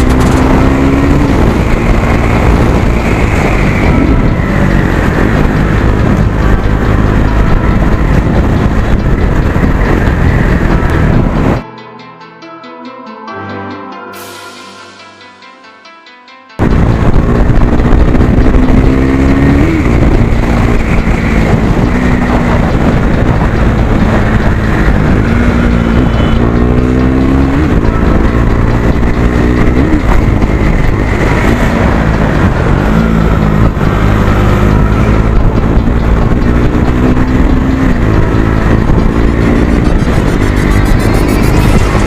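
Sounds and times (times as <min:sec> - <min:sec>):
motorcycle engine revving: 0:00.0 - 0:11.6, 0:16.6 - 0:42.0.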